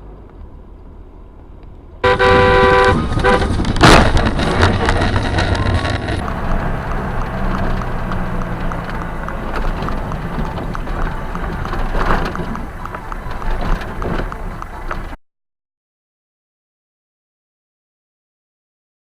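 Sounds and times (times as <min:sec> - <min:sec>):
vehicle engine and road noise: 0:00.0 - 0:15.2.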